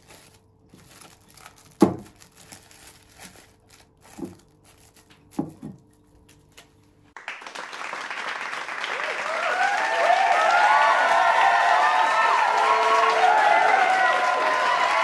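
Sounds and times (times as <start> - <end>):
plastic cling wrap crinkling: 0.0 - 7.2
crowd cheering and applauding: 7.2 - 15.0.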